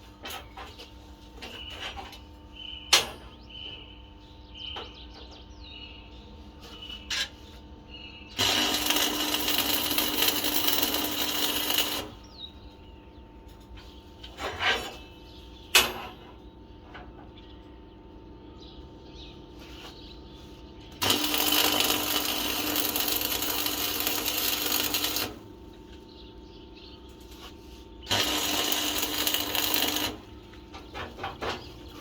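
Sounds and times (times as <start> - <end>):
steel pieces clinking: 8.4 - 12.1.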